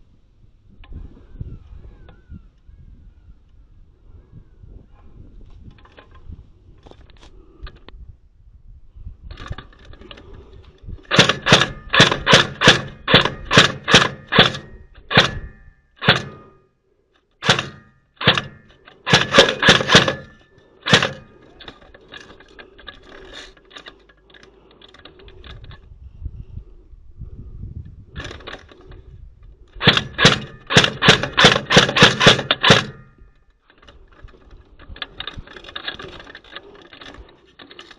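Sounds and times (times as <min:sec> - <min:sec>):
airsoft rifle shots: 0:11.1 - 0:16.6, 0:17.4 - 0:21.3, 0:29.8 - 0:33.1.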